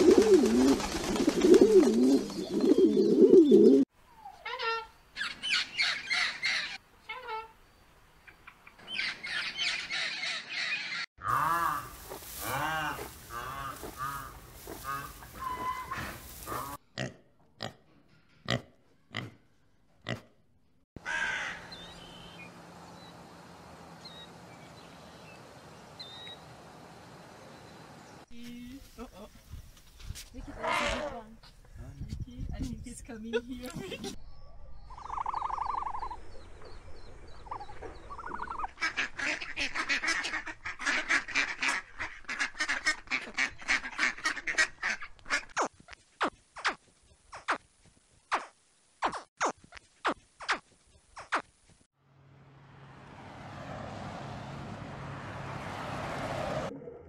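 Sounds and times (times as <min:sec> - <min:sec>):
wings flapping: 0:00.0 - 0:03.0
pigeons cooing: 0:00.0 - 0:03.9
low steady hiss: 0:06.8 - 0:08.9
animal calls and grunts: 0:09.0 - 0:20.4, 0:30.4 - 0:31.8, 0:56.5 - 0:57.0.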